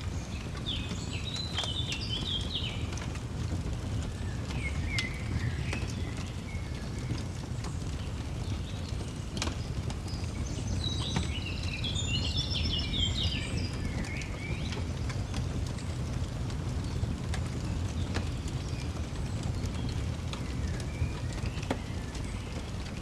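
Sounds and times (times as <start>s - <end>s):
fireplace crackling and popping: 0.0s - 23.0s
songbird twittering: 10.1s - 14.8s.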